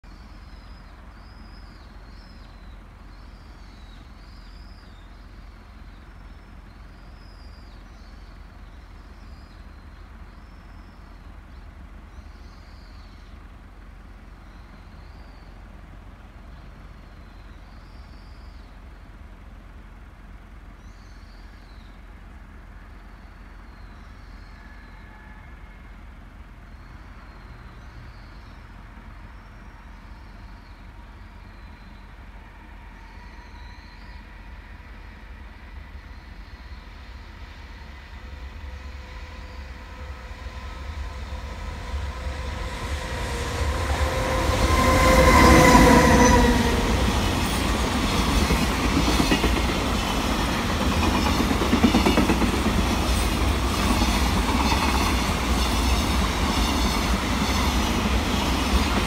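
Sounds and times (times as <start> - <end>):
low outdoor rumble: 28.6 - 54.5.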